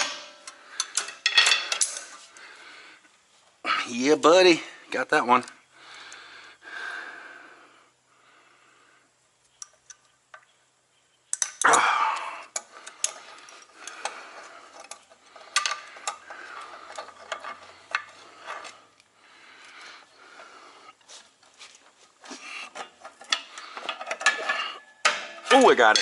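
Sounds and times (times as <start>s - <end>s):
metal tools clinking and scraping: 0.0s - 2.4s, 11.3s - 19.8s, 20.9s - 26.0s
metal clatter: 12.6s - 18.9s, 22.7s - 26.0s.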